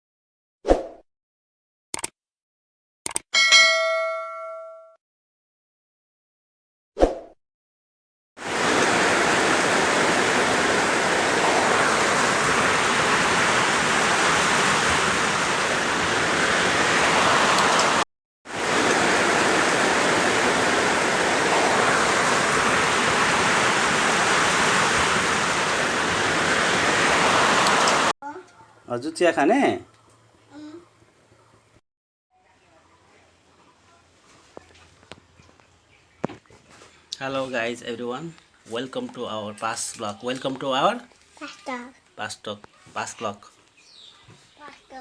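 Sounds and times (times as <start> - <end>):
heavy rain falling: 8.4 - 28.1.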